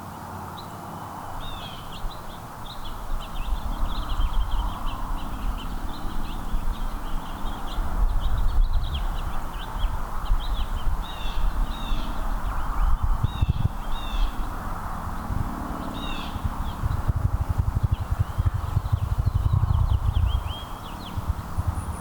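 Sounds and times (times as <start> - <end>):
songbirds chirping: 0.0 - 22.0
steady low rumble: 12.4 - 22.0.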